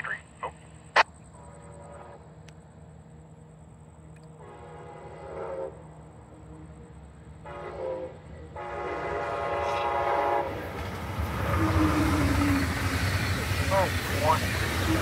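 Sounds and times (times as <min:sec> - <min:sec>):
train horn blasts: 0:01.4 - 0:02.4, 0:04.4 - 0:06.8, 0:07.4 - 0:10.6, 0:11.3 - 0:13.1
train rushing past: 0:04.4 - 0:15.0.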